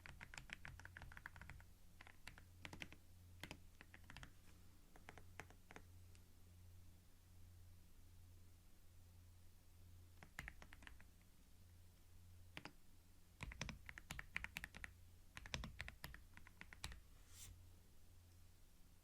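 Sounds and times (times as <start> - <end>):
keyboard typing: 0.0 - 5.9, 10.2 - 11.2, 12.5 - 12.8, 13.4 - 17.0
faint low hum: 0.0 - 19.0
soft hiss: 1.2 - 19.0.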